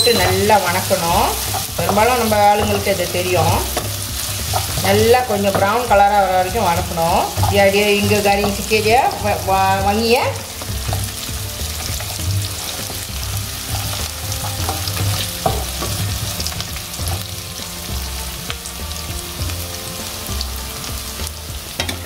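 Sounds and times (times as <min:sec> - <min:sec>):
spatula scraping and tapping pan: 0:00.0 - 0:09.9, 0:10.5 - 0:17.2
spices sizzling in hot oil: 0:00.0 - 0:22.0.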